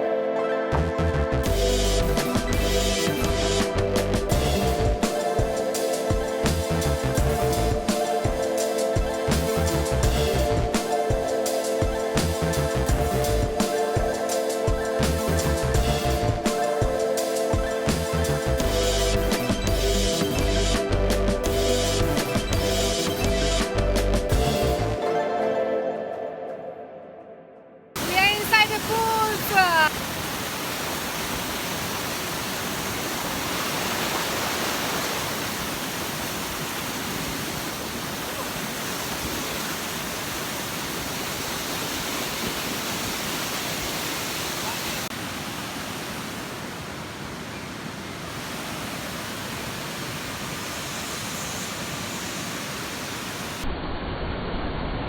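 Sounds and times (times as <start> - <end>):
waterfall rushing: 28.0 - 53.7.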